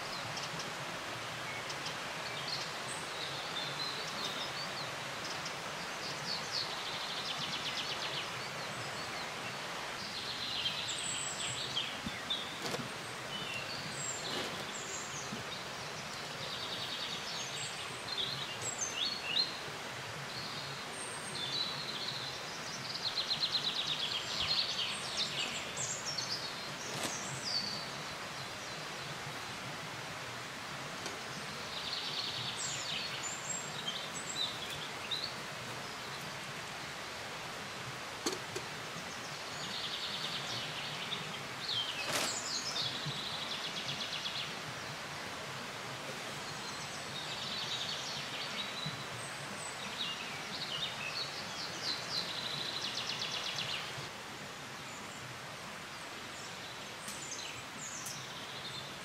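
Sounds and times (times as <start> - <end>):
outdoor hush: 32.4 - 39.6.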